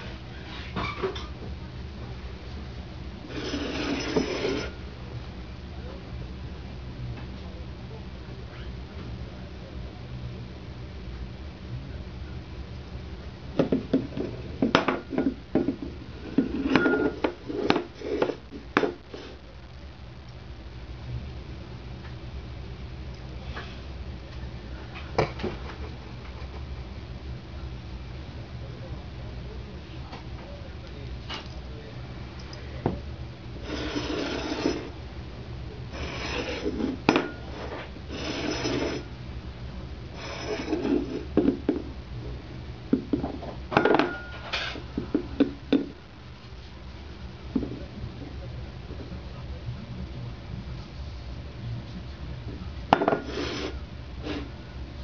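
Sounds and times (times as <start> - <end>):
dish knocking on hard surface: 13.6 - 15.9.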